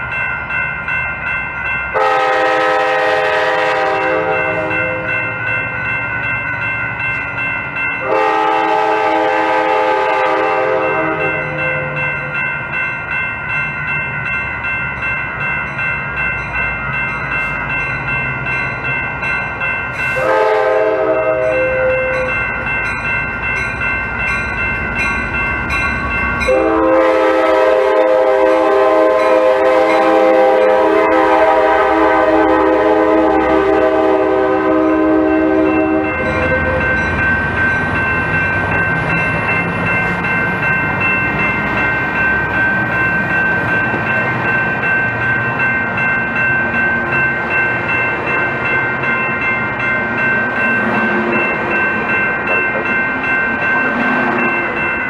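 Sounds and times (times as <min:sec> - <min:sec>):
bell ringing: 0:00.0 - 0:02.6, 0:04.1 - 0:08.7, 0:10.8 - 0:27.3, 0:35.0 - 0:55.0
train cars rolling by: 0:00.0 - 0:55.0
train horn chord: 0:02.0 - 0:05.2, 0:08.0 - 0:12.0, 0:20.2 - 0:22.3, 0:26.4 - 0:37.0.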